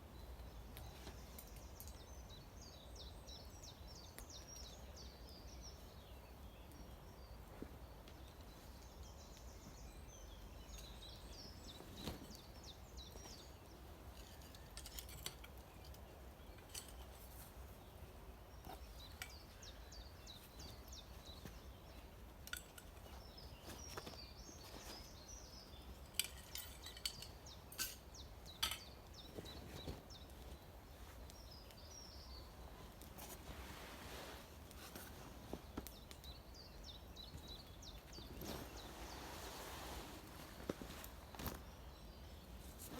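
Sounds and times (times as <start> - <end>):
faint birdsong: 0.0 - 42.9
sharp clicks and clinks: 26.1 - 28.9.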